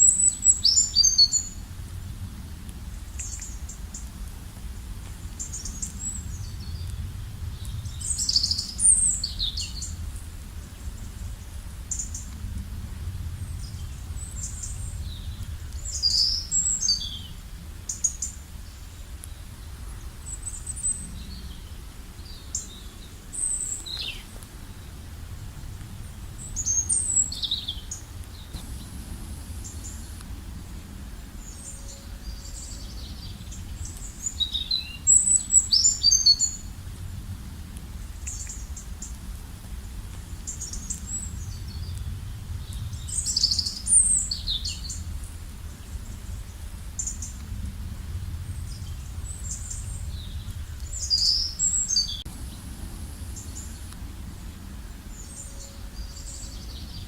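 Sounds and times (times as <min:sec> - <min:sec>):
steady low rumble: 0:00.0 - 0:57.0
wild birds chirping and trilling: 0:13.4 - 0:36.7, 0:48.2 - 0:57.0.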